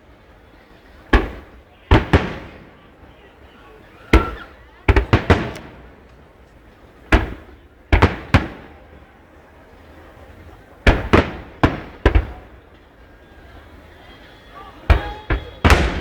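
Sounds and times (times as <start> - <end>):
fireworks bangs with echo: 0.8 - 3.3, 4.1 - 9.0, 10.7 - 13.4, 14.8 - 16.0.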